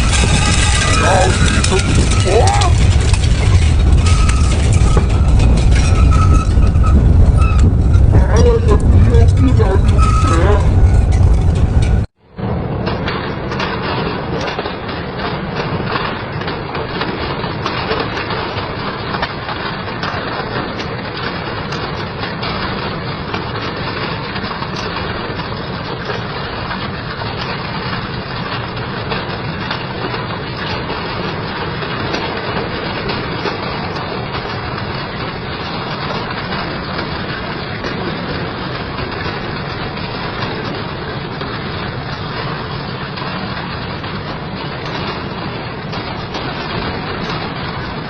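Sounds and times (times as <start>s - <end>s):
industrial shredder grinding scrap: 0.0s - 7.1s.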